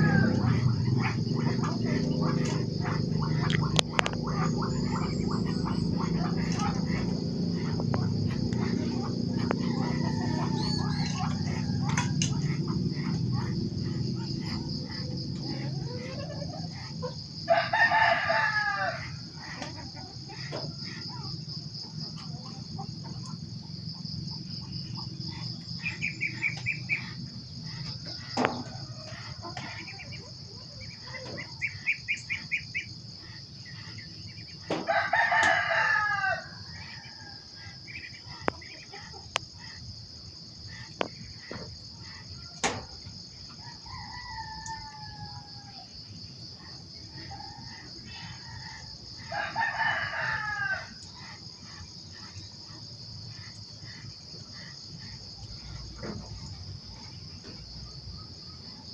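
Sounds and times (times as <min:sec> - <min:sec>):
rapid chirping calls: 0:00.0 - 0:17.1
rooster crowing: 0:00.0 - 0:21.0, 0:27.6 - 0:30.5, 0:34.6 - 0:37.8, 0:42.1 - 0:46.2, 0:46.8 - 0:51.5
high-pitched insect drone: 0:00.0 - 0:45.7.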